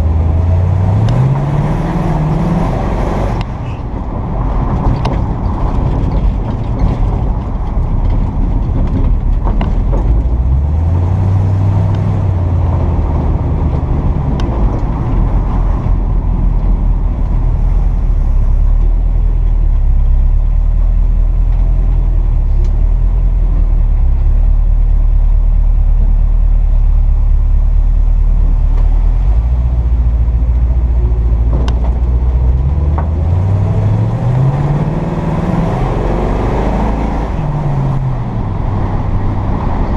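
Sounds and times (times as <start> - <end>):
pickup truck engine accelerating: 0.0 - 39.9.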